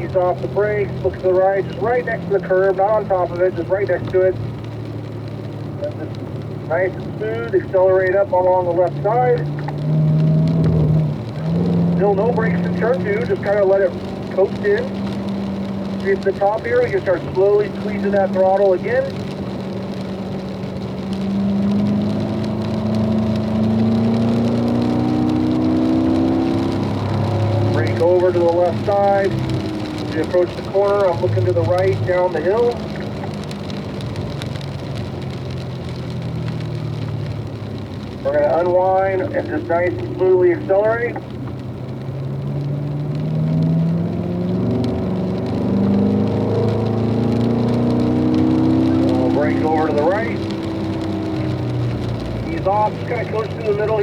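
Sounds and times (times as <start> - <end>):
car engine accelerating: 0.0 - 54.0.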